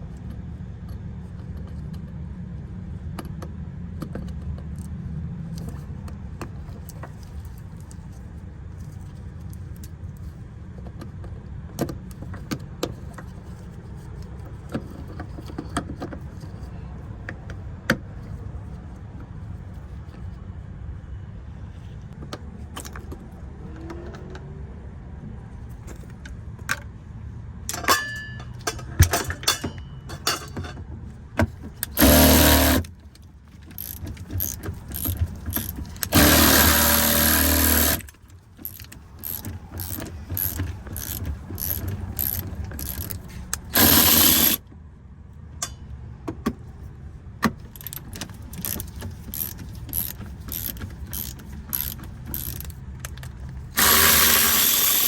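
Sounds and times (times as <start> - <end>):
hand ratchet clicking: 31.8 - 32.9, 33.6 - 44.6, 47.7 - 55.0.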